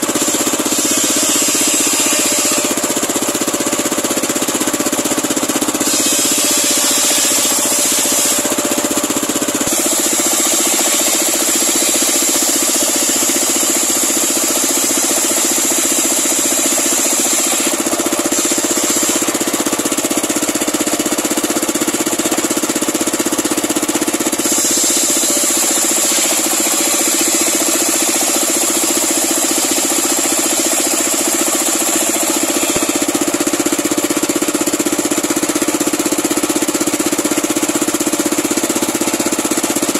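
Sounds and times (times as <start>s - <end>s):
circular sawmill blade ripping log: 5.6s - 8.5s, 24.4s - 30.3s.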